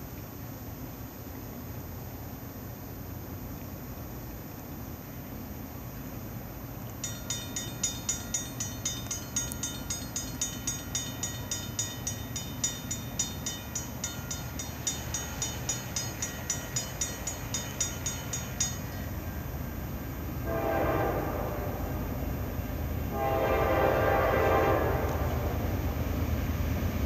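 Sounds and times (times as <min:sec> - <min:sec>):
railroad crossing bell dinging: 0:06.9 - 0:25.9
train air horn: 0:20.4 - 0:22.3, 0:23.1 - 0:25.7.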